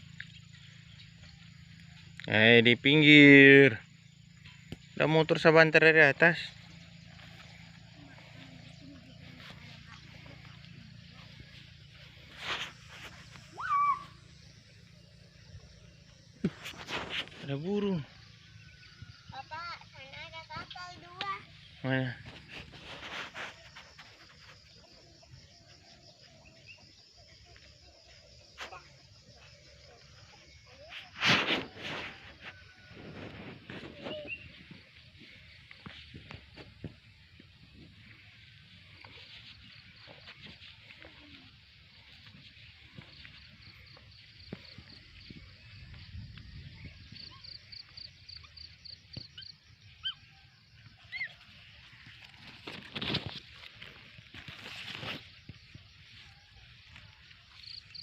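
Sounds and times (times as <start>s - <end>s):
insects chirring: 0.0s - 58.0s
bird calling short high notes: 13.5s - 14.4s.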